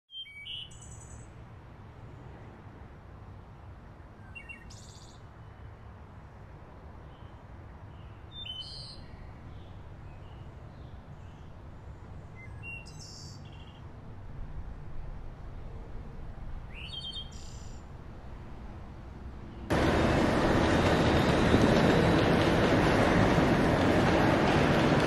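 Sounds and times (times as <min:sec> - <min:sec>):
bird chirps: 0:00.1 - 0:01.3, 0:16.7 - 0:17.8.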